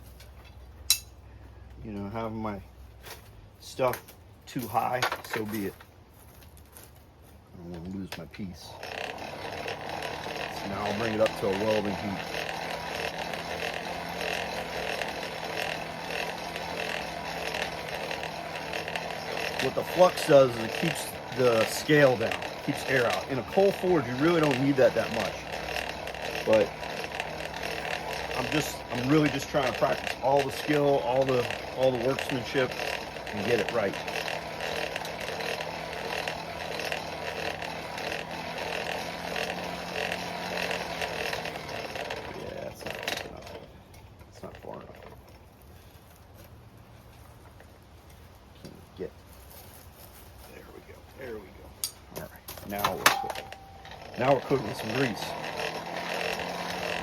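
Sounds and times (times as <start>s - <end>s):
forge air blower rushing: 8.7s - 43.4s, 52.7s - 57.0s.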